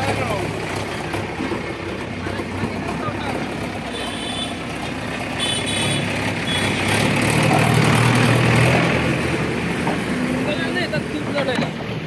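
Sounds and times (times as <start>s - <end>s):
heavy diesel engine revving: 0.0s - 12.0s.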